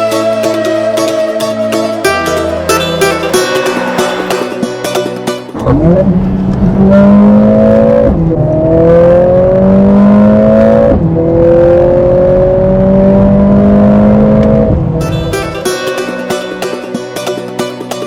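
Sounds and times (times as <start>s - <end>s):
car engine accelerating hard: 2.1s - 16.6s.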